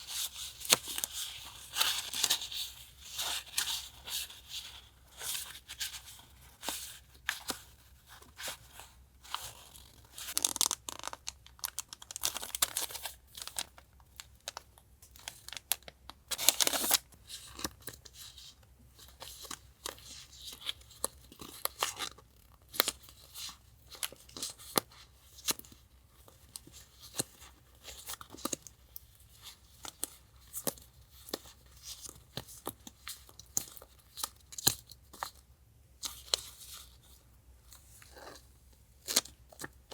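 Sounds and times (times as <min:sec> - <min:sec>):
paper and packaging crinkling: 0:00.0 - 0:18.4.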